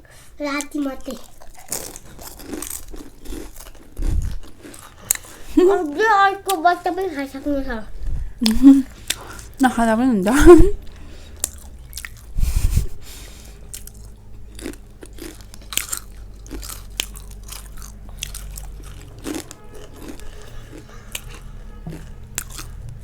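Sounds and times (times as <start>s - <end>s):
crunchy chips being chewed: 0.6s - 6.6s, 10.8s - 12.4s, 13.4s - 23.0s.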